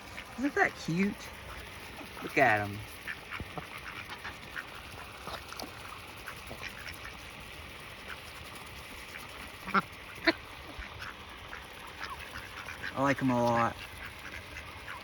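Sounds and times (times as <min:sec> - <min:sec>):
ducks pecking seeds: 0:00.0 - 0:15.0
duck quacks: 0:03.0 - 0:05.0, 0:09.2 - 0:15.0.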